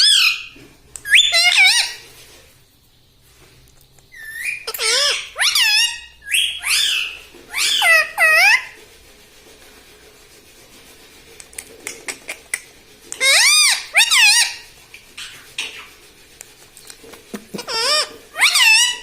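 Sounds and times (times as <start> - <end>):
parrot calling: 0.0 - 2.0, 4.1 - 8.8, 11.8 - 15.9, 17.3 - 19.0.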